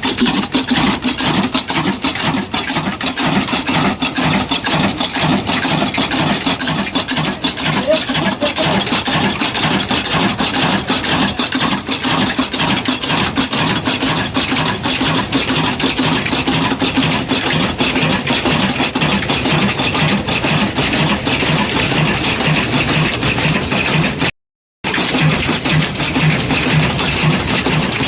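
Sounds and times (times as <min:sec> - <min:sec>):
stationary engine running: 0:00.0 - 0:28.0.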